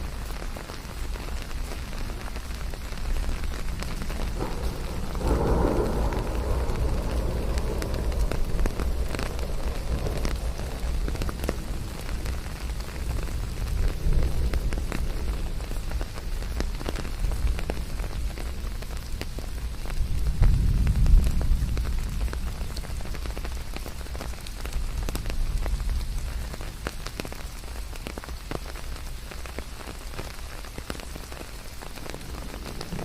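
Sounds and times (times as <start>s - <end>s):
raindrops ticking: 0.0s - 33.0s
steady rain falling: 0.0s - 33.0s
deep low rumble: 3.4s - 19.1s, 32.0s - 33.0s.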